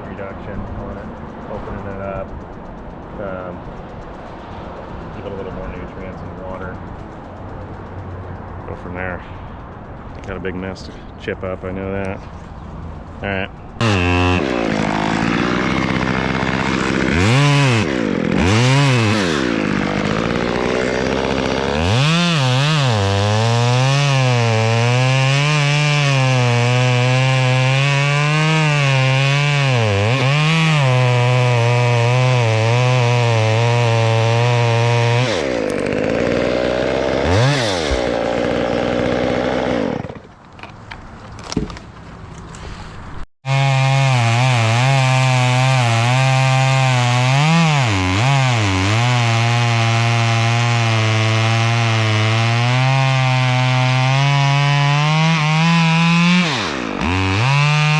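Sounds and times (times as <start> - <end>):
chainsaw revving and cutting wood: 13.8 - 40.4, 43.4 - 57.9.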